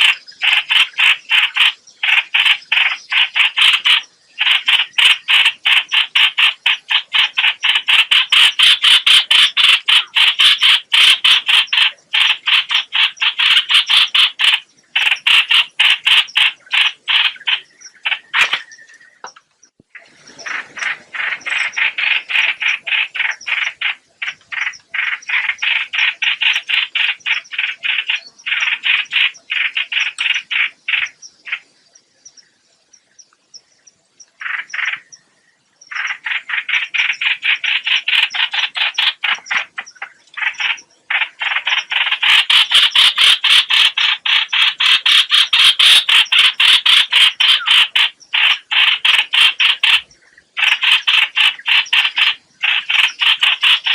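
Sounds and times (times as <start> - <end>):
bird calling harsh rapid notes: 35.9 - 53.9.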